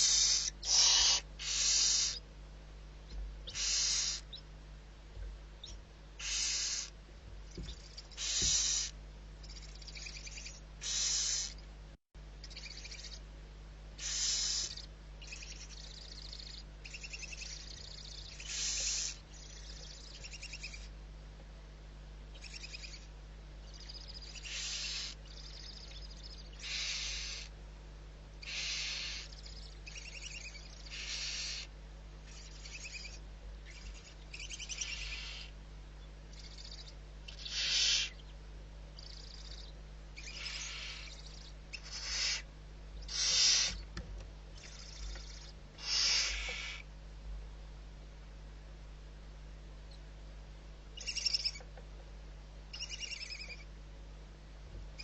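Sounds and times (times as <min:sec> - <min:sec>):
owl hissing calls: 0:00.0 - 0:02.3, 0:03.4 - 0:04.4, 0:06.2 - 0:11.6, 0:12.4 - 0:13.2, 0:14.0 - 0:20.9, 0:22.4 - 0:23.1, 0:23.7 - 0:27.5, 0:28.4 - 0:35.6, 0:36.3 - 0:38.3, 0:39.0 - 0:43.9, 0:44.6 - 0:46.9, 0:51.0 - 0:51.6, 0:52.7 - 0:53.7.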